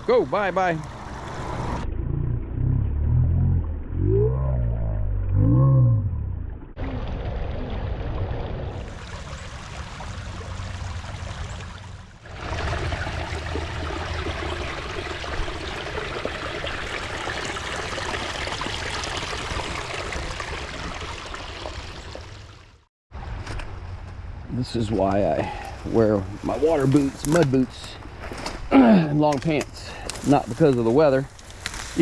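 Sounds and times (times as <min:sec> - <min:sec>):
creek water trickling: 0:00.0 - 0:01.8, 0:06.8 - 0:22.9, 0:24.7 - 0:32.0
low rumble: 0:01.4 - 0:08.9.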